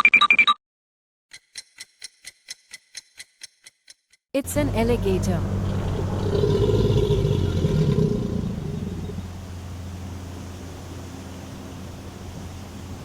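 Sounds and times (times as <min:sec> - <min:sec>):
alligator bellowing: 0:04.6 - 0:10.8.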